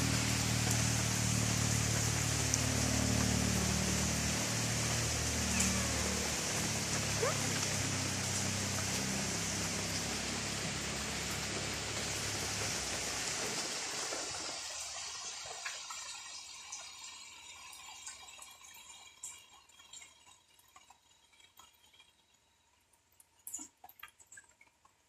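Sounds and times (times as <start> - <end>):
rain falling on foliage: 0.0 - 19.2
water dripping: 0.0 - 25.0.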